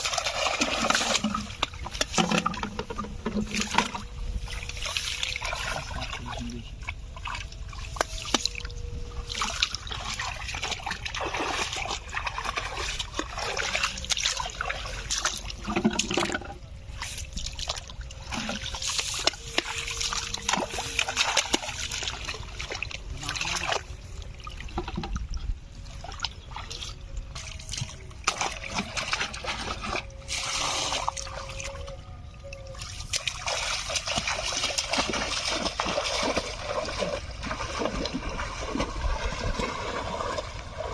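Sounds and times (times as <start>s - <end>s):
water splashing and trickling: 0.0s - 40.9s.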